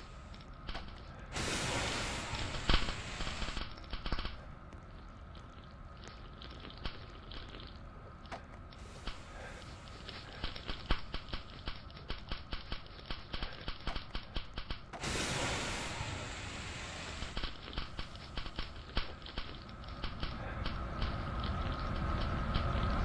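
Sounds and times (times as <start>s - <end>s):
rush of hiss: 0.0s - 0.4s, 1.3s - 3.7s, 8.8s - 11.6s, 15.0s - 21.2s.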